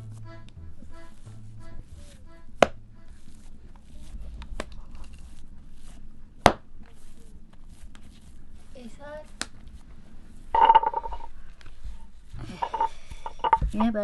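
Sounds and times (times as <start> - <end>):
sharp hard knocks: 6.4 - 6.7.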